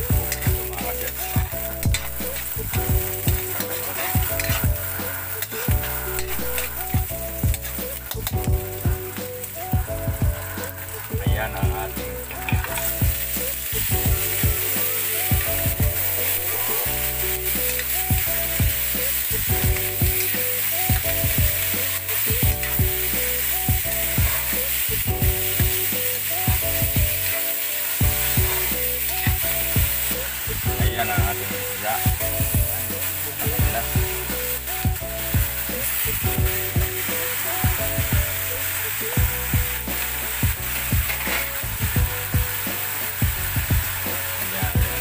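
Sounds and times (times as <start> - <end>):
vegetables sizzling in hot oil: 0.0 - 45.0
metal ladle scraping a wok: 0.3 - 6.9, 40.8 - 41.7.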